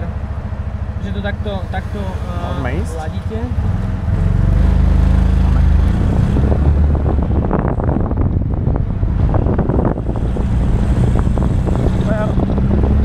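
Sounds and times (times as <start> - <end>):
car engine under load: 0.0 - 13.0
wind buffeting microphone: 4.1 - 13.0.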